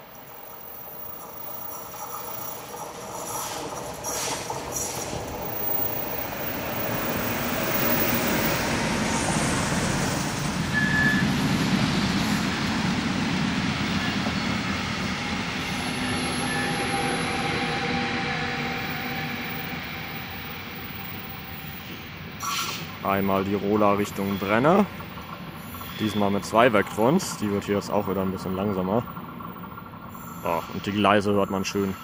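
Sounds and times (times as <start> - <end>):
freight train passing: 0.0 - 32.0
high wheel squeal: 10.7 - 11.4, 15.5 - 22.9, 23.7 - 24.9, 25.6 - 27.7
wheels clattering on rails: 22.4 - 32.0.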